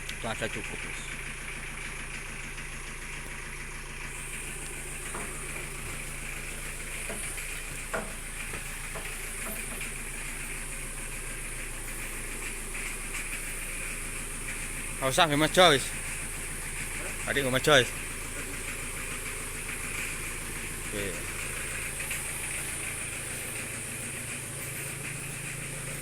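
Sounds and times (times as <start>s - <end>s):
low engine hum: 0.0s - 26.0s
faint knocks: 7.0s - 10.0s.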